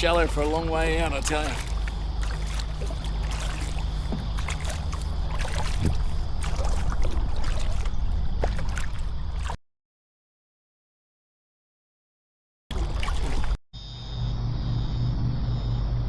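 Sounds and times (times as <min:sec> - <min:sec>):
low rumble: 0:00.0 - 0:09.6, 0:13.8 - 0:16.0
paddle strokes splashing water: 0:00.0 - 0:09.6, 0:12.7 - 0:13.6.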